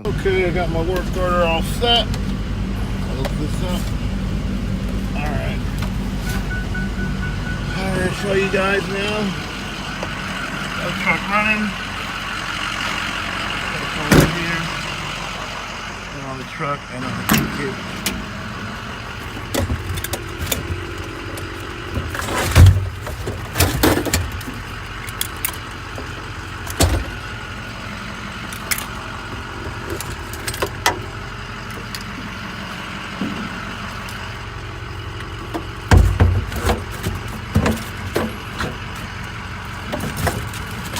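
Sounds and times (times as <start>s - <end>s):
truck engine idling: 0.0s - 40.9s
metal clanks and rattles: 19.1s - 40.9s.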